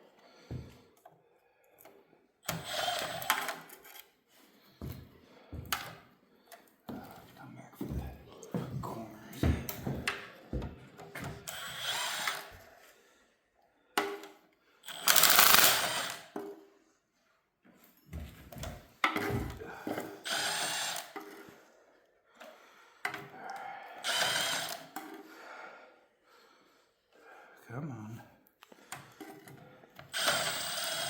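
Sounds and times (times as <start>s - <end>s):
power tool bursts: 2.5s - 3.6s, 11.5s - 12.5s, 14.8s - 16.4s, 20.2s - 21.2s, 24.0s - 24.9s, 30.1s - 31.0s.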